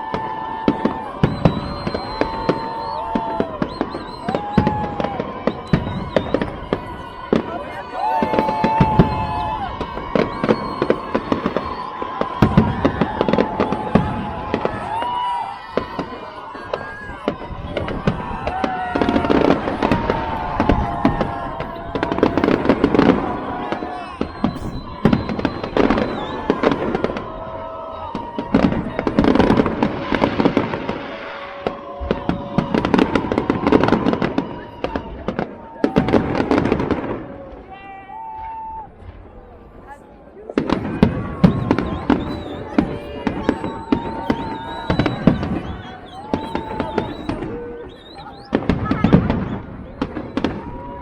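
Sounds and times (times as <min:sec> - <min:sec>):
fireworks bangs and cracks: 0:00.0 - 0:51.0
high whistling tones: 0:01.0 - 0:07.0, 0:08.2 - 0:12.8, 0:23.6 - 0:27.0, 0:41.4 - 0:50.5.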